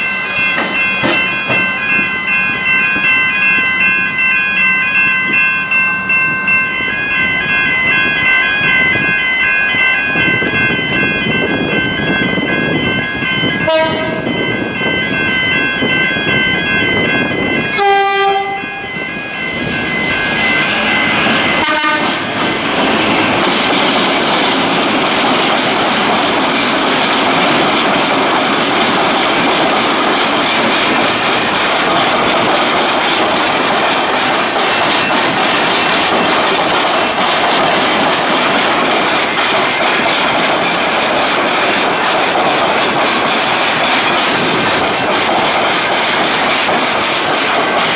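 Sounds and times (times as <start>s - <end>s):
pulsing high ringing: 0.0s - 46.7s
train wheels rumbling and clattering: 0.0s - 47.9s
electric train horn: 13.6s - 14.2s, 17.7s - 18.9s, 21.6s - 22.3s.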